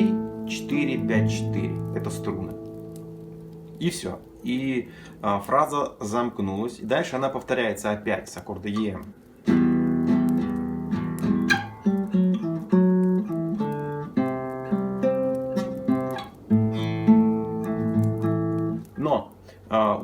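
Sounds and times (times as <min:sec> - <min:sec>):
classical guitar played slowly: 0:00.0 - 0:07.5, 0:08.6 - 0:19.1.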